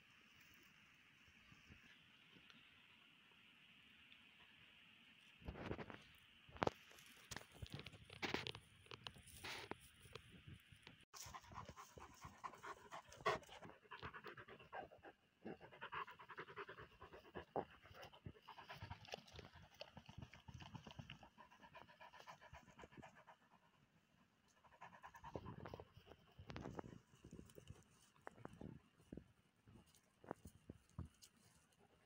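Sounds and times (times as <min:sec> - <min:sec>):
dog panting: 0:11.2 - 0:23.8.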